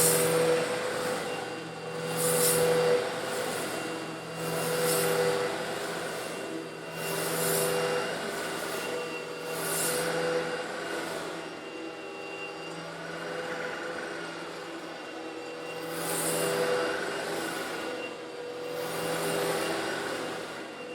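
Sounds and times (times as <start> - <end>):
vacuum cleaner sucking up stones: 0.0 - 11.9.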